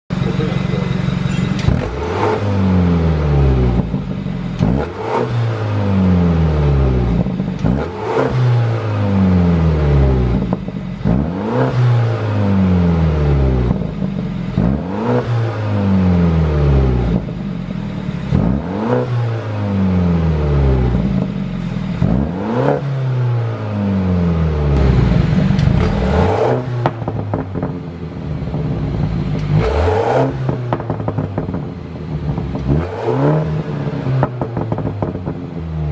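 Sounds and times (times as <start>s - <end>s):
car engine revving: 0.1s - 35.9s
exhaust pops and crackles: 7.1s - 7.8s, 24.8s - 26.1s, 26.8s - 27.9s, 28.6s - 29.8s, 30.5s - 32.8s, 34.2s - 35.6s.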